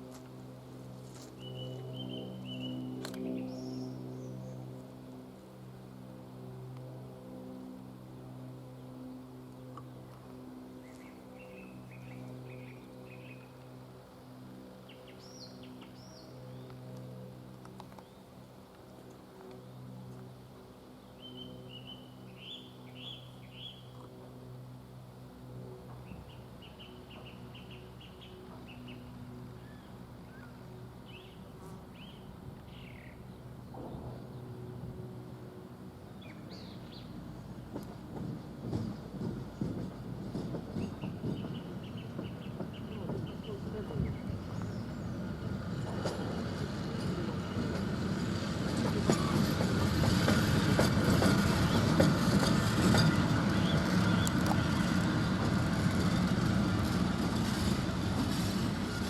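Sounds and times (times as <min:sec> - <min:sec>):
steady low hum: 0:00.0 - 0:59.0
train rumbling on rails: 0:32.0 - 0:59.0
wheels clicking and knocking: 0:48.6 - 0:59.0.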